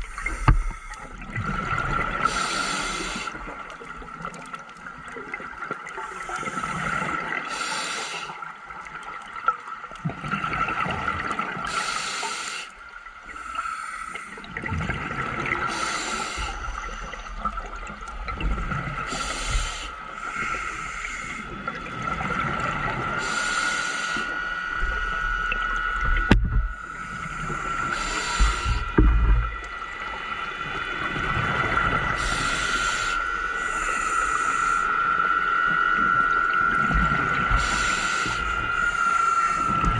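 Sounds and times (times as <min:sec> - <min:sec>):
regulator breathing underwater: 0:00.0 - 0:01.2, 0:02.0 - 0:03.6, 0:05.9 - 0:08.5, 0:11.6 - 0:14.6, 0:15.6 - 0:17.9, 0:19.0 - 0:21.8, 0:22.8 - 0:25.7, 0:26.6 - 0:30.2, 0:32.0 - 0:35.4, 0:37.3 - 0:39.9
low gurgles: 0:00.0 - 0:39.9.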